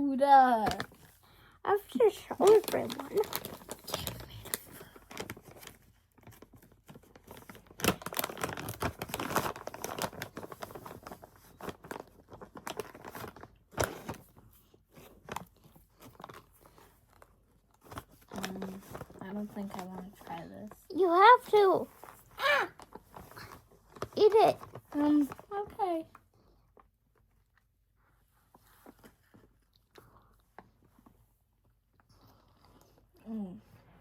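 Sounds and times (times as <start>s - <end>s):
plastic packaging crinkling: 1.8s - 26.0s.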